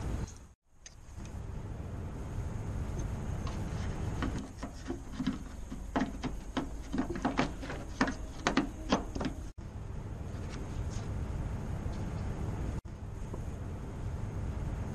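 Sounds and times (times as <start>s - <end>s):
low rumble: 1.1s - 4.2s
clicks and knocks of hand work: 3.5s - 9.5s.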